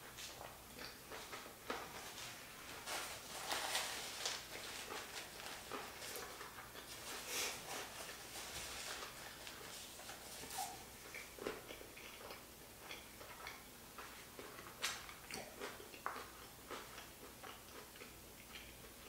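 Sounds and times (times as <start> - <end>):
person chewing with mouth clicks: 0.1 - 2.0, 4.4 - 8.3, 8.9 - 19.0.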